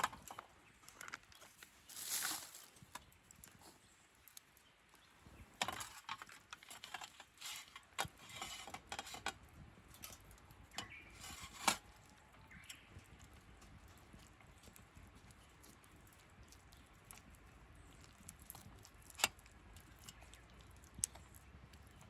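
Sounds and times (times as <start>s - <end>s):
objects being handled: 0.0s - 3.8s, 5.3s - 14.2s.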